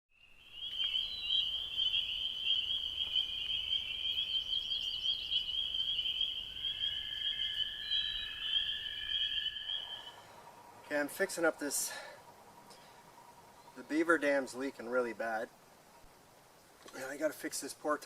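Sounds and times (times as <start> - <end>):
lower-pitched frog trill: 0.2 - 10.3
marsh frogs trilling: 0.4 - 10.2.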